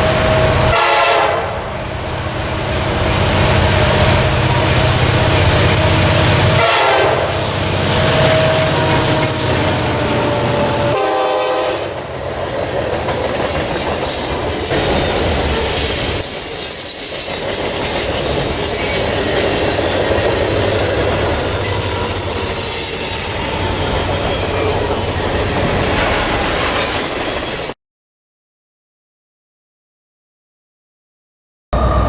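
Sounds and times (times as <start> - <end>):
train rumbling on rails: 0.0 - 27.8, 31.8 - 32.0
high wheel squeals: 3.6 - 6.2, 7.2 - 11.0, 11.8 - 27.8.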